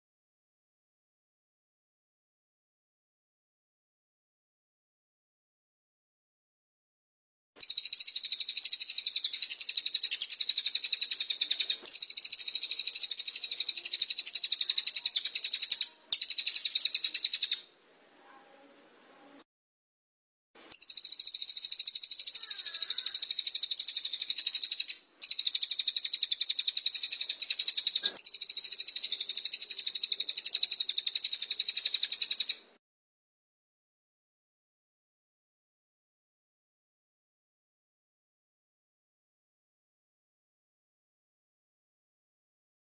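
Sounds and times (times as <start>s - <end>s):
songbird high-pitched trill: 7.6s - 17.7s, 20.6s - 32.6s.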